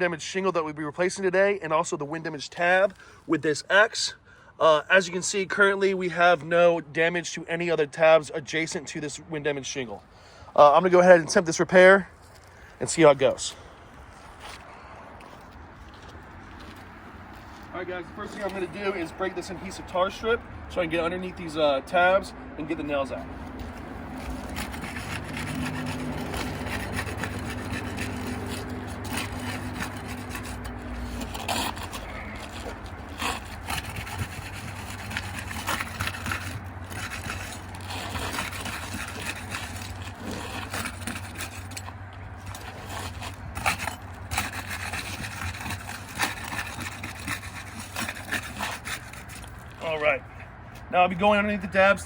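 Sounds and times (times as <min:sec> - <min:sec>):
roof shingles scraping: 0:23.3 - 0:50.2.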